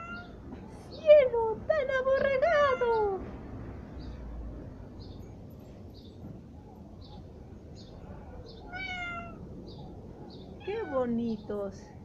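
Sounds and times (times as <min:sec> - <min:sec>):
cat meowing: 0:00.0 - 0:00.4, 0:08.6 - 0:09.5, 0:10.6 - 0:11.1.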